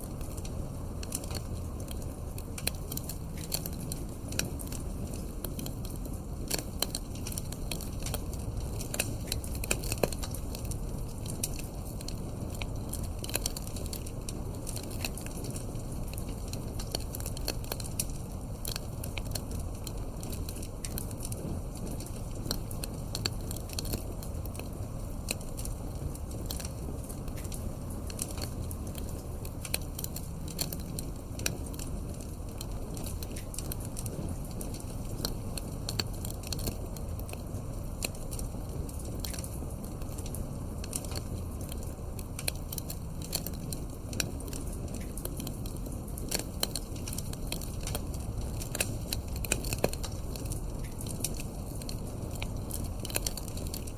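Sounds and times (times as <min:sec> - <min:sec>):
fire pops and crackles: 0:00.0 - 0:53.9
low rumble of fire: 0:00.0 - 0:53.9.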